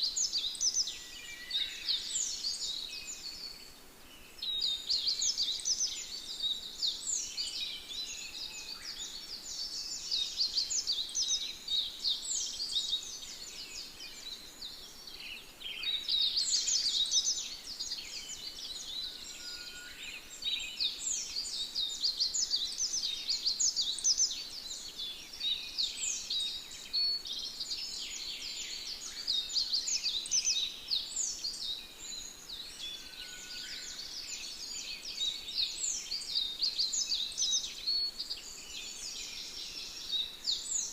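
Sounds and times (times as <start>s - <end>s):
birds chirping and singing: 0.0s - 40.9s.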